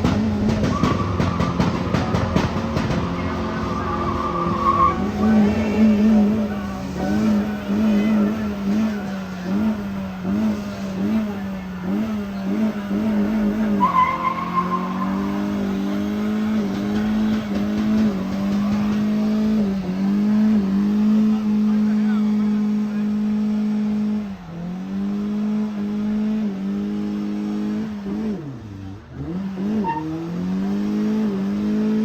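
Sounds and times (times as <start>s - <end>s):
car engine revving: 0.0s - 32.0s
tyres squealing: 0.2s - 19.7s.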